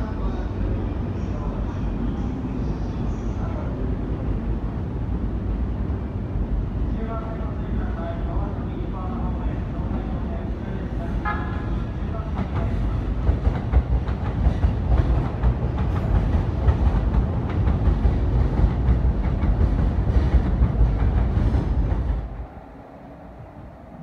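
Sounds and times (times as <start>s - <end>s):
train wheels clacking over joints: 12.4s - 22.1s.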